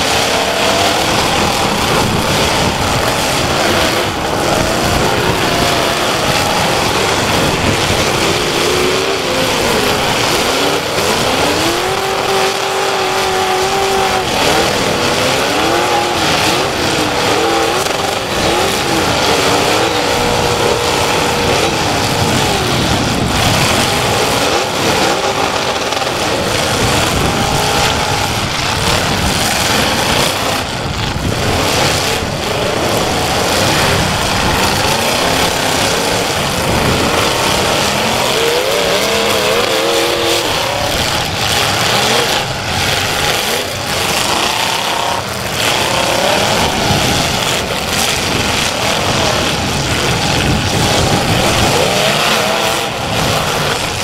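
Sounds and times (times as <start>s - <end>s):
car engines revving hard: 0.0s - 54.0s.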